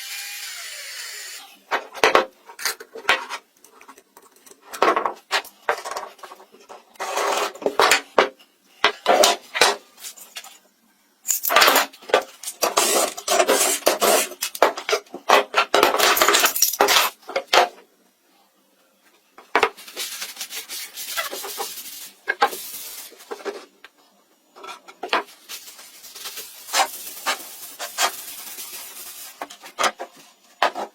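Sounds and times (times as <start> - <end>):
scraping and rubbing on wood: 19.7 - 23.8, 24.6 - 30.9.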